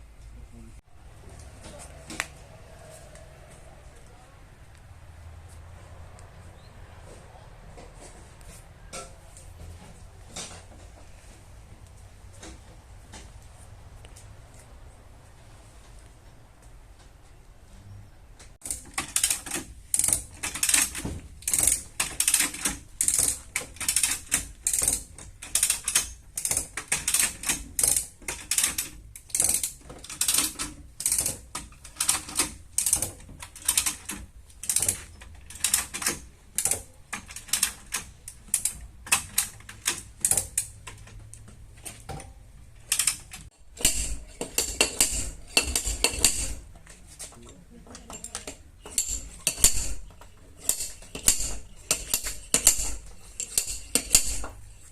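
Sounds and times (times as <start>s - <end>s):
hammer tapping sheet metal: 48.8s - 54.9s.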